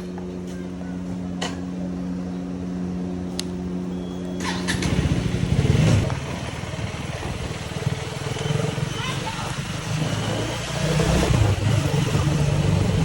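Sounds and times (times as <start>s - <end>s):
motorcycle engine revving: 4.2s - 13.0s.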